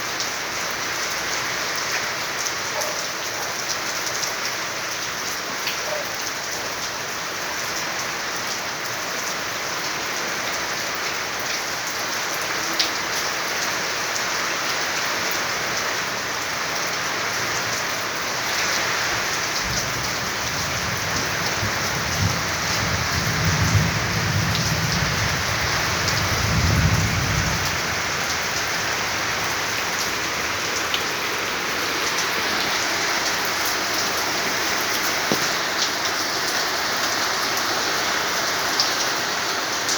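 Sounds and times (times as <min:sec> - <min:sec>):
heavy rain falling: 0:00.0 - 0:39.9
thunder rumbling: 0:19.6 - 0:29.8.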